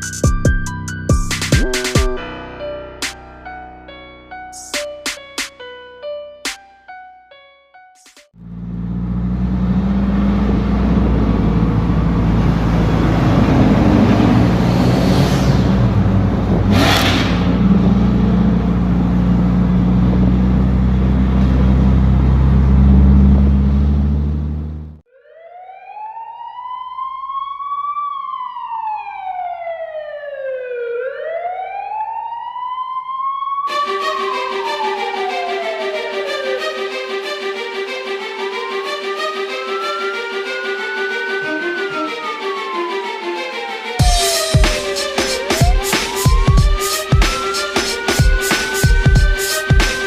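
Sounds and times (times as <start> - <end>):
police siren wailing: 8.4 - 16.5, 17.6 - 50.0
car engine running: 17.4 - 25.0.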